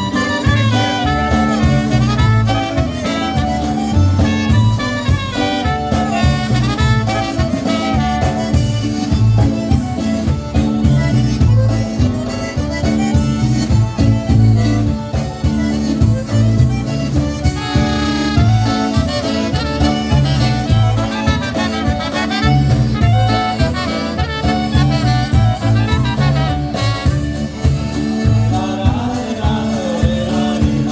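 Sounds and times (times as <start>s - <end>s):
horns: 0.0s - 9.4s, 17.3s - 27.9s
accordion: 0.0s - 30.9s
bass notes: 0.0s - 30.9s
polka band playing: 0.0s - 30.9s.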